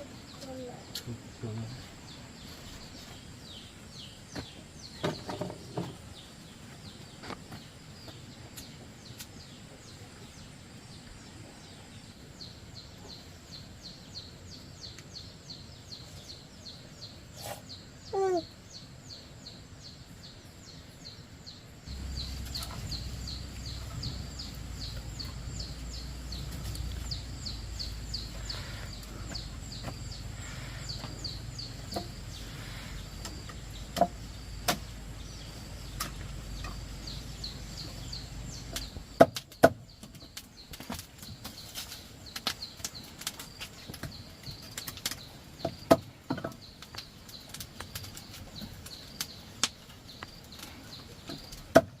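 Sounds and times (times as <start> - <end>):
outdoor background noise: 0.0 - 52.0.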